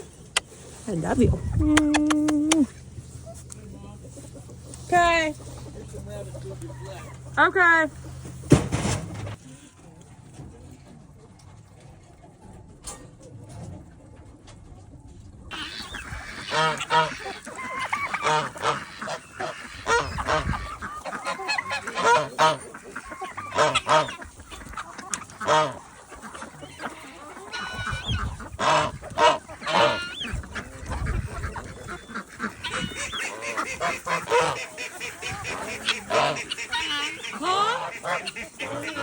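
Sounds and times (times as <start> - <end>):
geese honking: 2.9 - 8.6, 15.5 - 39.0.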